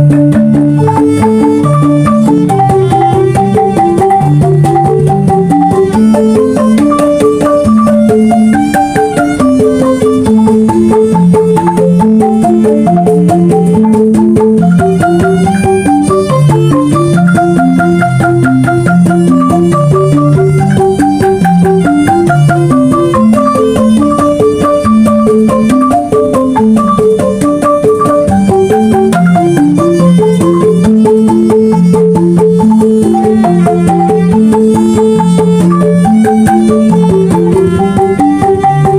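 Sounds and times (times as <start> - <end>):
bamboo xylophones playing: 0.0 - 38.9
drum percussion: 0.0 - 38.9.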